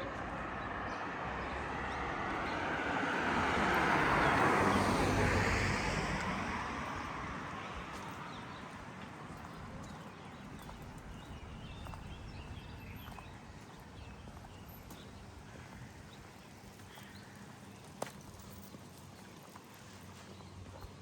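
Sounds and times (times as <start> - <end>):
car driving past: 0.0 - 7.8.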